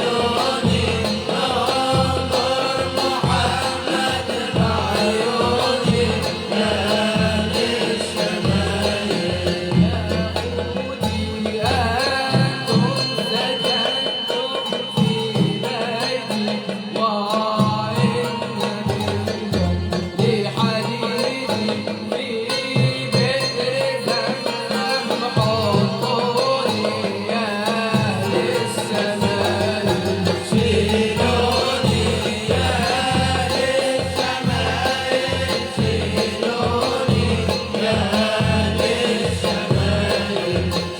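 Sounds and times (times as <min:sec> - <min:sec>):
hand drums beating: 0:00.0 - 0:40.9.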